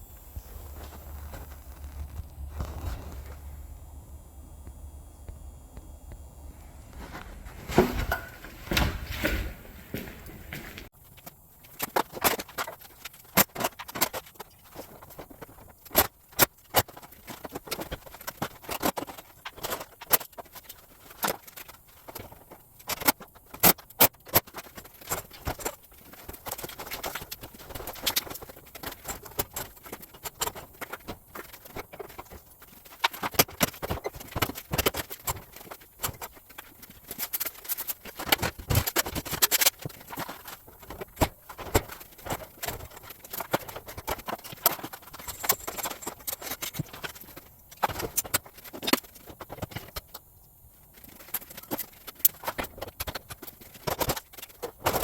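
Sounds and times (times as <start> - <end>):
tools clicking and clinking: 11.2 - 50.2.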